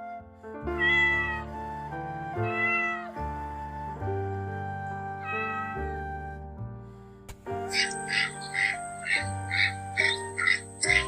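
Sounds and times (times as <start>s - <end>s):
background music: 0.0s - 11.0s
cat meowing: 0.8s - 1.4s, 2.4s - 3.1s, 5.2s - 5.9s.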